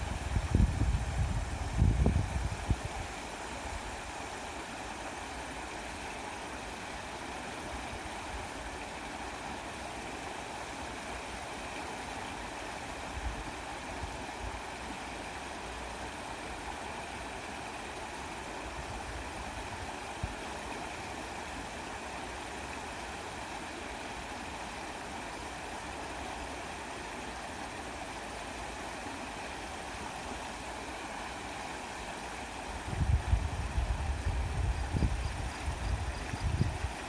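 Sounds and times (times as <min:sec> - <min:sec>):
flowing stream water: 0:00.0 - 0:37.0.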